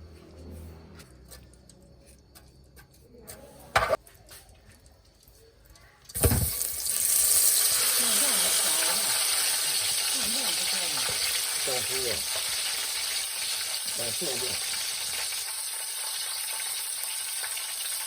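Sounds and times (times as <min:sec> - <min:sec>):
food sizzling in hot oil: 0:04.8 - 0:18.0.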